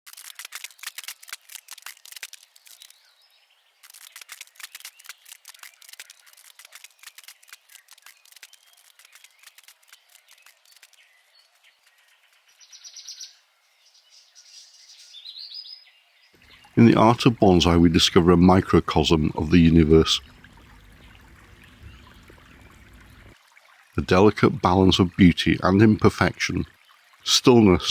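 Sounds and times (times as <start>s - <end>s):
small birds chirping: 0.4s - 23.4s
trilled bird call: 20.2s - 23.4s.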